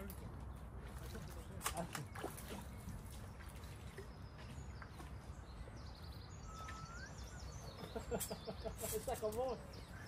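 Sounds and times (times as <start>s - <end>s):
songbird chirping: 0.0s - 10.0s
bird rising whistle: 6.4s - 7.5s.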